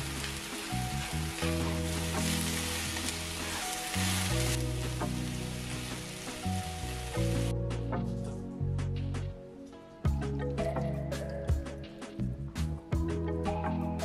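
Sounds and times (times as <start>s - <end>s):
vegetables sizzling in a frying pan: 0.0s - 7.5s
soft background music: 0.0s - 14.0s.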